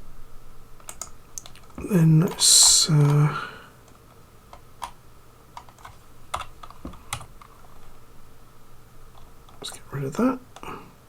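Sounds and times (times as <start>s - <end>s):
computer keyboard clicks: 0.8s - 2.4s, 3.9s - 5.0s, 5.6s - 7.9s.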